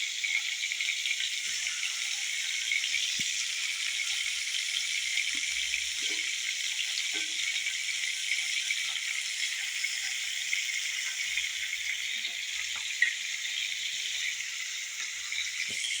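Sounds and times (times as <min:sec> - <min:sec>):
food sizzling in hot oil: 0:00.0 - 0:16.0
oil crackling and popping: 0:15.6 - 0:16.0.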